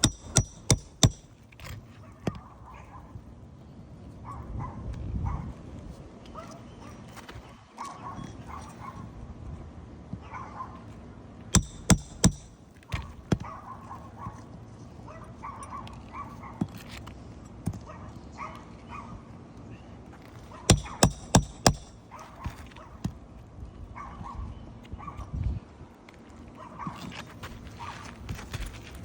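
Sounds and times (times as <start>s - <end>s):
sharp hard knocks: 0.0s - 1.4s, 11.6s - 13.4s, 20.7s - 22.0s.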